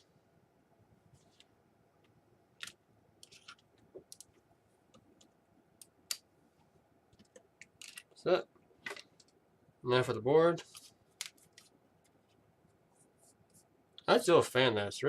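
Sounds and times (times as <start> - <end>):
small plastic parts clicking: 7.2 - 8.2.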